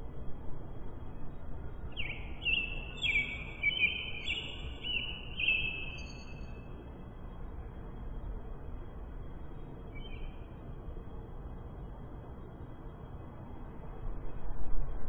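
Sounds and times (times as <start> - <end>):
steady low background noise: 0.0 - 15.0
birds chirping: 2.0 - 6.5.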